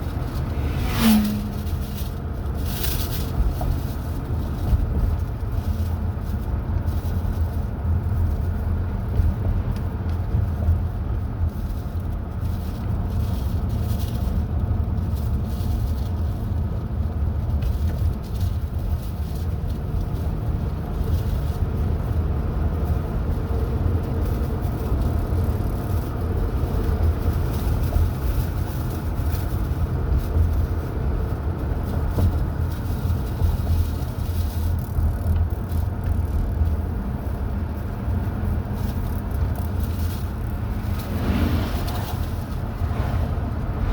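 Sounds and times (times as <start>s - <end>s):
car engine rumble: 0.0s - 43.9s
tyre road noise: 0.0s - 43.9s.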